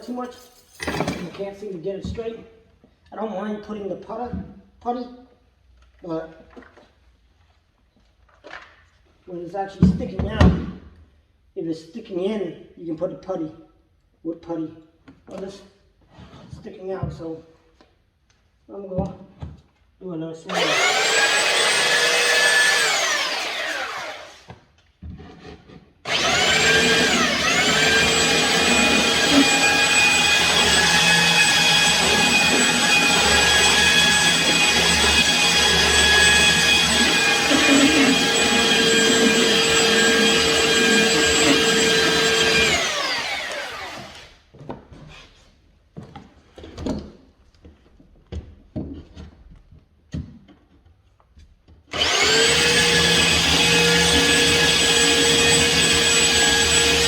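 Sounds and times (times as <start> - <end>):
electric sander whining: 20.5 - 24.5, 26.1 - 44.3, 51.9 - 57.0
sander winding down: 20.5 - 24.5, 26.1 - 44.4, 51.9 - 57.0.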